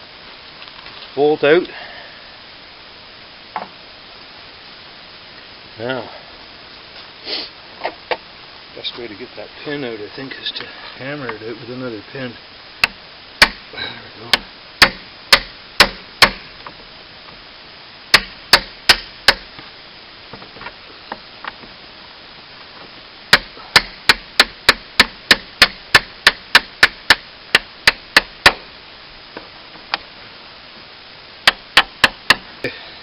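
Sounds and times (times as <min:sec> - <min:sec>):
hammer striking metal pin: 0:14.8 - 0:16.4, 0:23.3 - 0:28.6.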